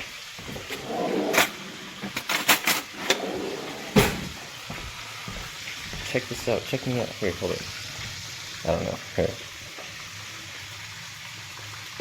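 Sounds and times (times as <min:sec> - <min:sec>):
fish sizzling in a pan: 0:00.0 - 0:03.0, 0:04.3 - 0:12.0.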